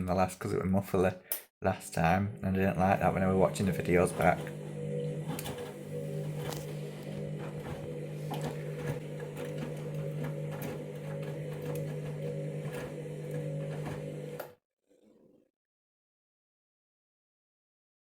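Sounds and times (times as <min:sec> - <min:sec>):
washing machine drum motor humming: 0:02.4 - 0:14.6.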